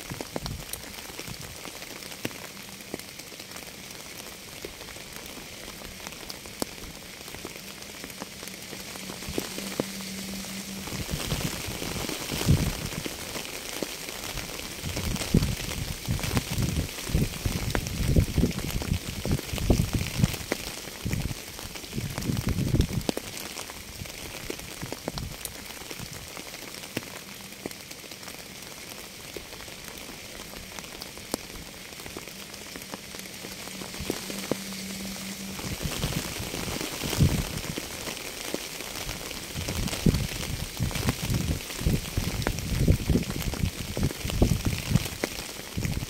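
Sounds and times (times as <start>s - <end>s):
steady rain falling: 0.0s - 46.0s
low rumbling surges: 4.4s - 23.1s, 29.7s - 46.0s.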